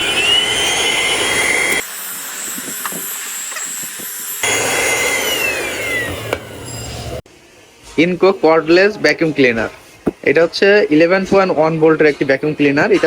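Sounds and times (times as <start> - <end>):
handheld vacuum motor whining: 0.0 - 7.2.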